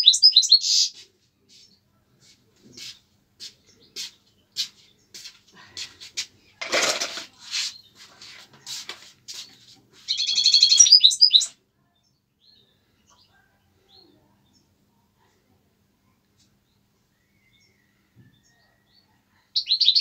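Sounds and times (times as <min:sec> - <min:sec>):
small bird chirping: 0:00.0 - 0:05.4, 0:07.4 - 0:14.8, 0:16.4 - 0:20.0
bird trilling loudly: 0:10.1 - 0:11.5.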